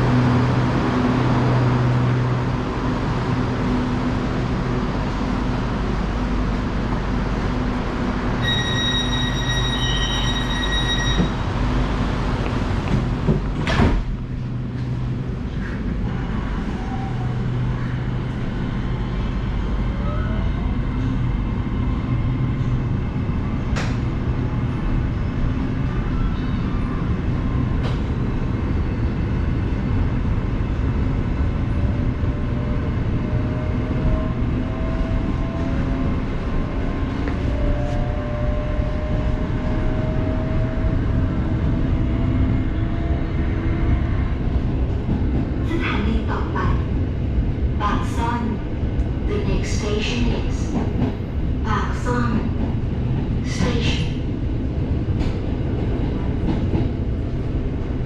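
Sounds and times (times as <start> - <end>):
electric train rumble and hum: 0.0 - 58.0
high steady beep: 8.4 - 11.3.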